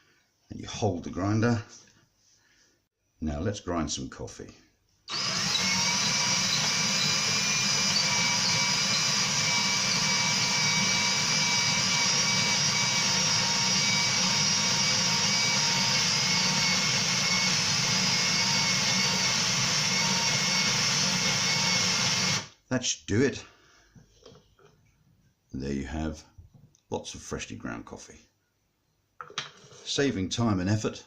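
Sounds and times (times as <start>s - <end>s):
electric drill grinding coffee: 5.1s - 22.5s.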